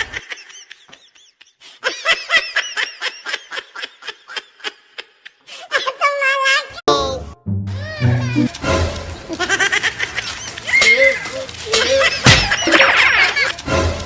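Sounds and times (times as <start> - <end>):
person snickering laugh: 11.3 - 13.6.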